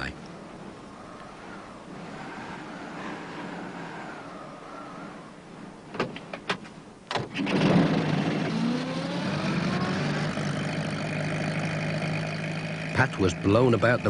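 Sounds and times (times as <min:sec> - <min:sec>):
van engine starting: 0:07.1 - 0:14.0.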